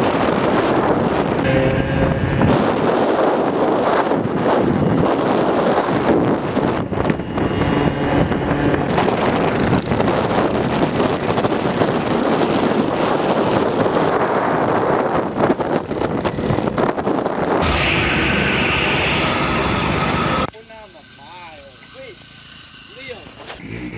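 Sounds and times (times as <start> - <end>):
wind buffeting on microphone: 0.0 - 20.5
minibike engine running: 7.2 - 17.0, 17.7 - 23.9.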